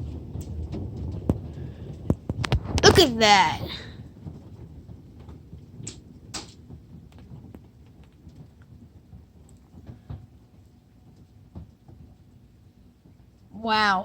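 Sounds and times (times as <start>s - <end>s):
hailstones clicking on deck: 0.0s - 13.9s
heavy rain rushing: 0.0s - 14.0s.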